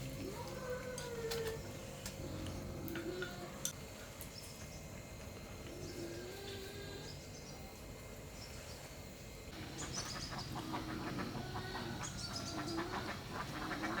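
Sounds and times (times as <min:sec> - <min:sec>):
chickens clucking: 0:09.6 - 0:14.0.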